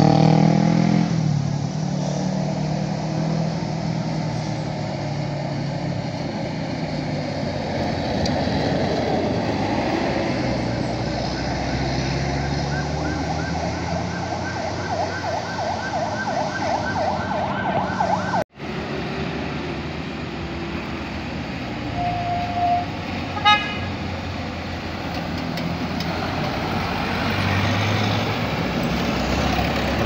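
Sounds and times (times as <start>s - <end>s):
engine and road noise: 0.0s - 30.0s
siren horn warbling: 11.2s - 18.5s, 21.9s - 24.0s.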